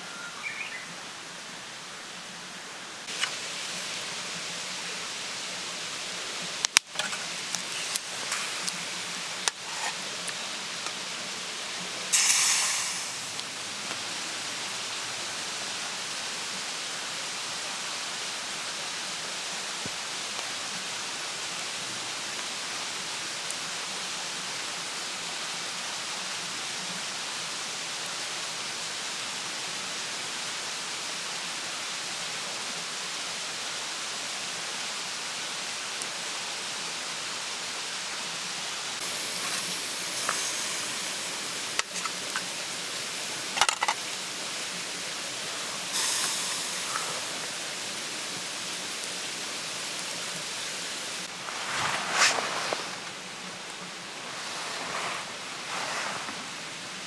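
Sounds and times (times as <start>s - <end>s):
steady rushing hiss: 0.0s - 32.6s, 33.2s - 57.0s
short loud hiss: 6.9s - 10.2s, 12.1s - 13.6s, 39.0s - 53.0s.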